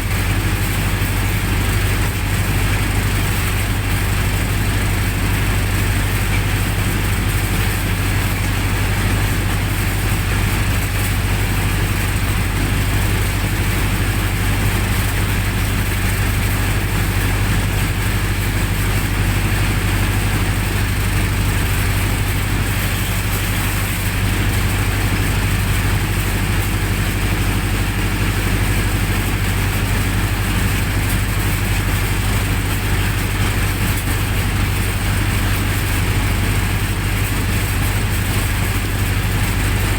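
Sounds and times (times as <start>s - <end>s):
generator engine running: 0.0s - 39.9s.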